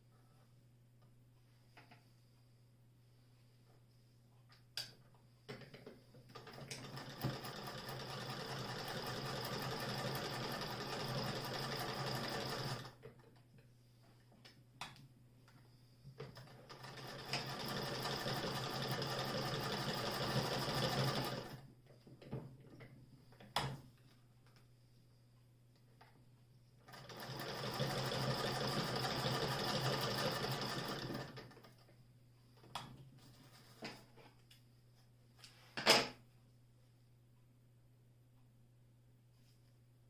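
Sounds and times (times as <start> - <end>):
hand-crank sewing machine sewing: 6.3 - 13.0, 16.2 - 21.6, 26.9 - 31.8.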